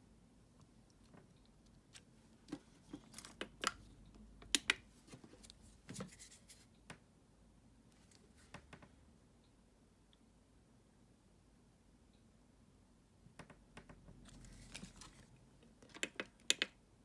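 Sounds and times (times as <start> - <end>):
light clicks and taps of small parts: 15.6 - 16.8.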